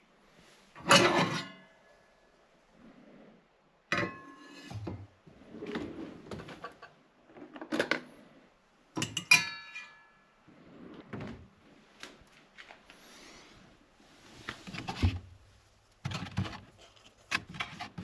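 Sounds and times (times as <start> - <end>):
utensils and dishes clinking: 9.0 - 10.4.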